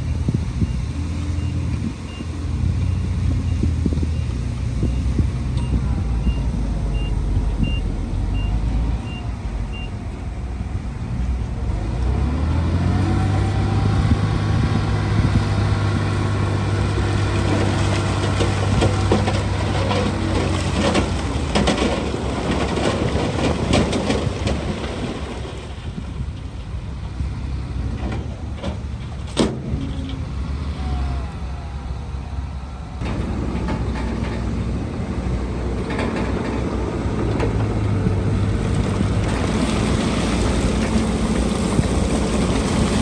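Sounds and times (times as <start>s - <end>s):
heavy diesel engine: 0.0s - 43.0s
reversing alarm beeping: 1.4s - 10.0s
clattering and clanking: 35.7s - 37.8s.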